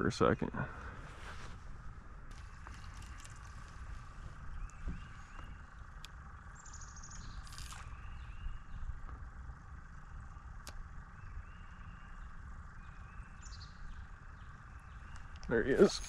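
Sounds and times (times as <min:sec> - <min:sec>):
steady low rumble: 0:00.0 - 0:16.0
small birds chirping: 0:00.1 - 0:16.0
sharp clicks: 0:10.6 - 0:10.9.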